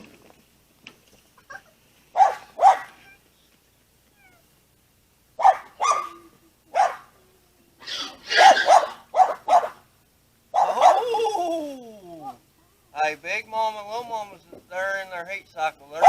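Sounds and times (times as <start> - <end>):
short loud animal calls: 7.8 - 9.8.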